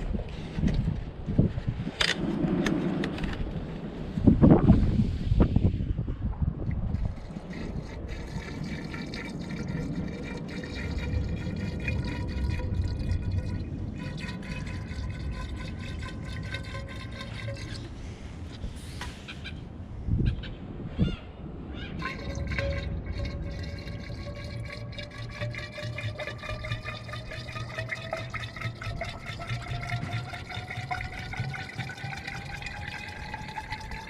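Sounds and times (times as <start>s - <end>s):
liquid pouring: 6.5s - 18.7s, 22.0s - 34.0s.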